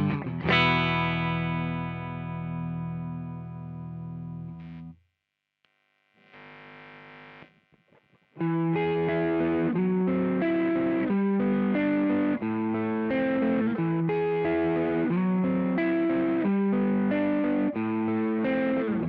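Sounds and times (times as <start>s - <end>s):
overdriven electric guitar riff: 0.0s - 5.0s, 6.2s - 7.6s, 8.4s - 19.0s.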